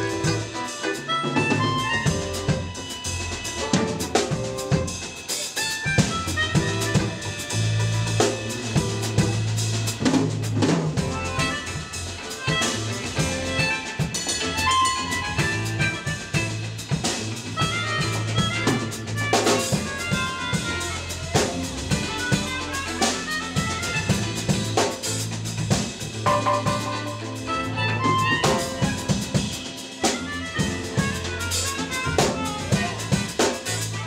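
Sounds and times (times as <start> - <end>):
drum kit snare and rimshots: 0.0 - 34.0
electric bass line: 0.0 - 34.0
melodic notes: 26.2 - 31.7.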